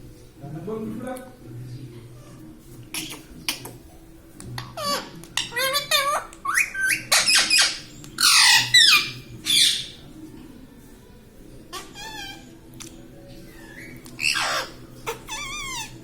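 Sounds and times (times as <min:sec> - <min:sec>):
parrot chattering: 0:02.9 - 0:03.8, 0:04.6 - 0:10.0, 0:11.7 - 0:12.5, 0:13.8 - 0:16.0
parrot squawking: 0:02.9 - 0:03.8, 0:04.6 - 0:10.0, 0:11.7 - 0:12.5, 0:13.5 - 0:16.0.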